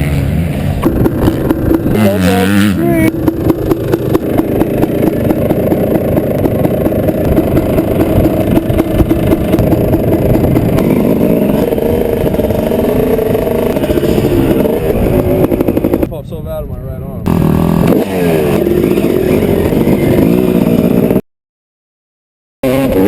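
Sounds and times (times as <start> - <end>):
dirt bike engine revving: 0.0 - 16.1, 17.2 - 21.2, 22.6 - 23.0.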